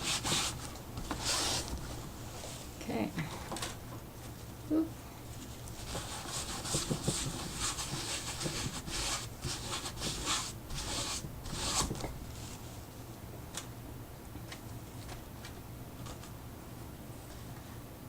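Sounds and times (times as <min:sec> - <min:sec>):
scrubbing on paper: 0:00.0 - 0:02.0, 0:05.4 - 0:12.6.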